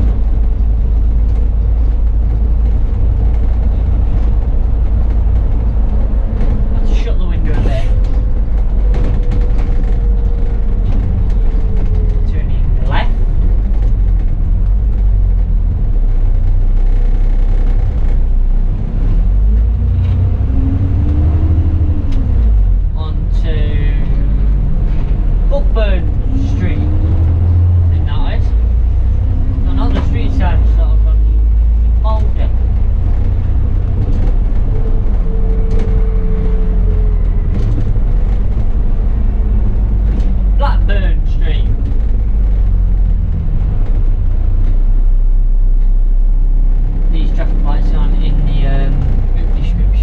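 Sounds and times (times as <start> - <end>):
faint knocks and rattles: 0.0 - 18.5
bus engine rumbling: 0.0 - 50.0
drivetrain whine: 0.0 - 50.0.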